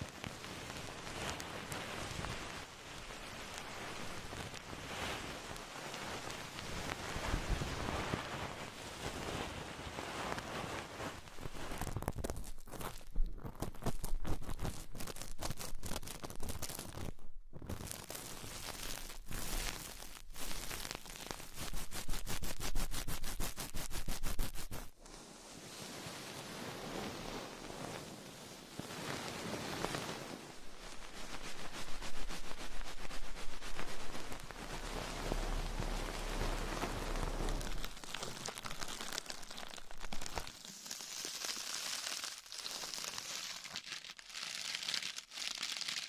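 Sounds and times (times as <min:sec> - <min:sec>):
soft rustling hiss: 0:00.0 - 0:44.0
quick scratchy strokes: 0:17.8 - 0:24.9, 0:30.1 - 0:43.8.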